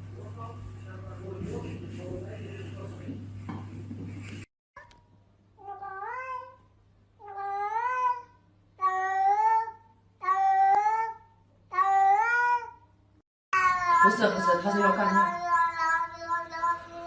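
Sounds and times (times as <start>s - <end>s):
cat meowing: 5.6s - 6.6s.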